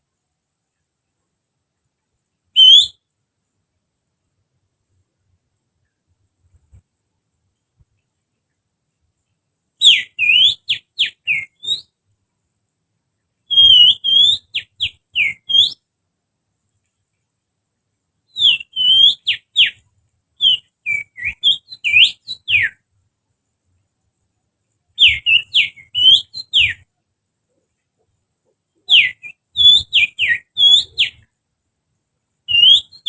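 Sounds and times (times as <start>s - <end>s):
finger whistling birdsong: 2.6s - 3.0s, 9.8s - 11.9s, 13.5s - 15.8s, 18.3s - 19.8s, 20.4s - 22.8s, 25.0s - 26.8s, 28.9s - 31.3s, 32.5s - 33.0s.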